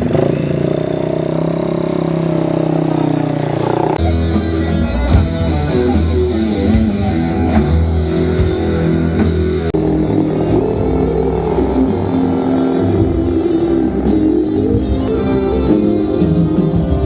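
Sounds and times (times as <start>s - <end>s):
rock music with guitar and drums: 0.0s - 17.0s.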